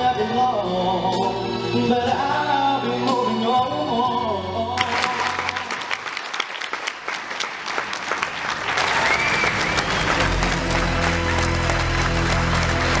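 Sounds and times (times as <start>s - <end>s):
sung music: 0.0s - 5.9s
audience clapping: 4.8s - 13.0s
music with low notes: 10.1s - 13.0s.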